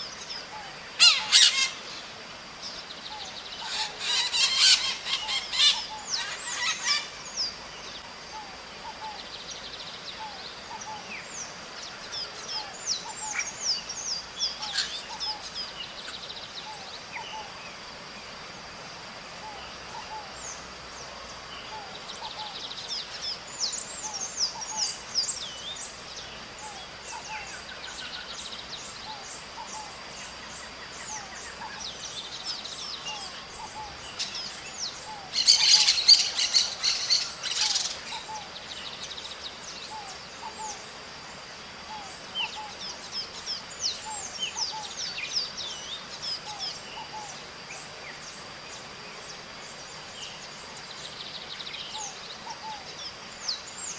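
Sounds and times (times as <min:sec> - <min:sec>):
harsh parrot calls: 0:01.0 - 0:01.8, 0:03.6 - 0:07.1
parrots chirping: 0:01.0 - 0:01.8, 0:03.7 - 0:07.1, 0:35.3 - 0:38.0.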